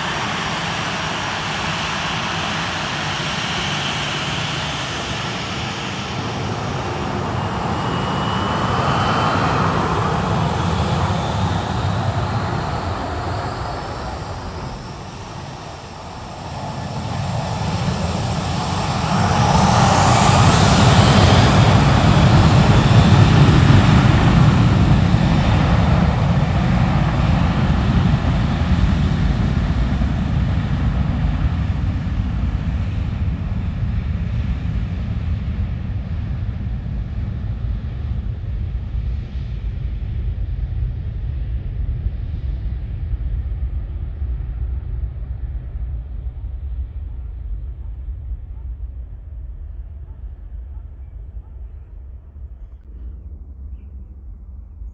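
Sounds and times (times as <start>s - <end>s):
jet engines roaring: 0.0s - 34.1s.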